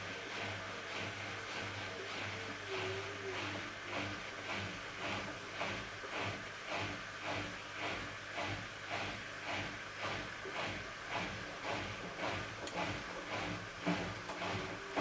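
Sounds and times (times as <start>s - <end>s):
laundry swishing in drum: 0.0s - 15.0s
washing machine motor hum: 0.0s - 15.0s.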